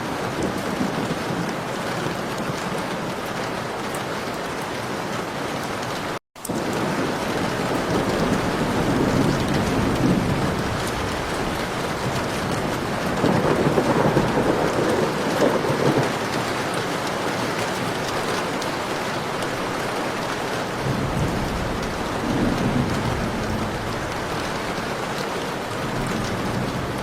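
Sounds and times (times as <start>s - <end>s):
heavy rain falling: 0.0s - 27.0s
rolling thunder: 6.5s - 16.8s, 20.7s - 27.0s.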